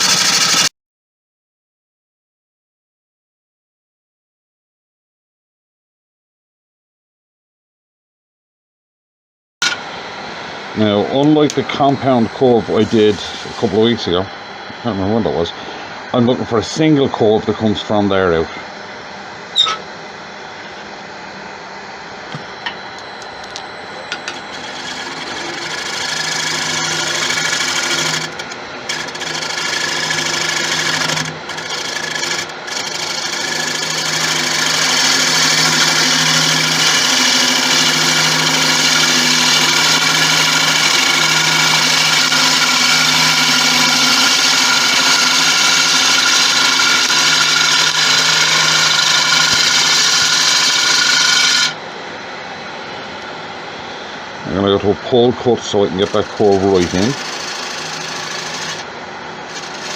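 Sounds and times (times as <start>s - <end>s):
lathe humming: 0.0s - 0.7s, 9.6s - 59.9s
lathe tool cutting wood hiss: 0.0s - 0.7s, 10.8s - 14.2s, 24.5s - 51.8s, 55.7s - 58.9s, 59.5s - 59.9s.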